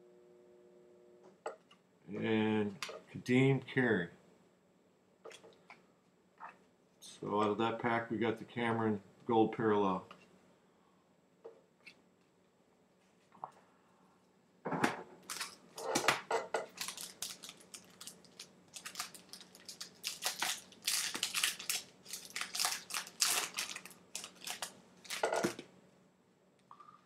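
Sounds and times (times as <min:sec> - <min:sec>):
wrapper crinkling and tearing: 0:15.3 - 0:25.6.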